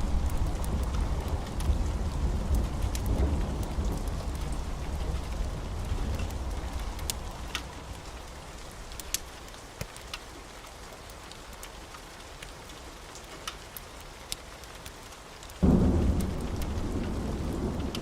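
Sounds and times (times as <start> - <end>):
low thunder rumble: 0.0 - 8.1, 15.6 - 18.0
steady rain falling: 0.0 - 18.0.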